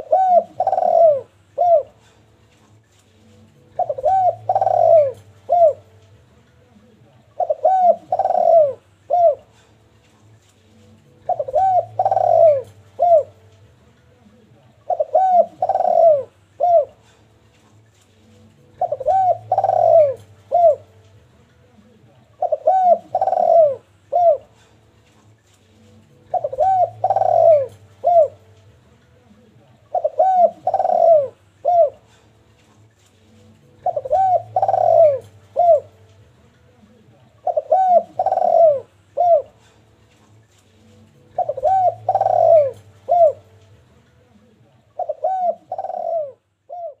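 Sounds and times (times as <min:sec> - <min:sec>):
dove cooing: 0:00.0 - 0:02.2, 0:03.6 - 0:06.0, 0:06.8 - 0:09.7, 0:11.1 - 0:13.5, 0:14.8 - 0:17.3, 0:18.6 - 0:20.9, 0:22.3 - 0:24.8, 0:26.2 - 0:28.6, 0:29.8 - 0:32.4, 0:33.6 - 0:36.1, 0:36.8 - 0:39.9, 0:41.0 - 0:43.6, 0:44.4 - 0:47.0.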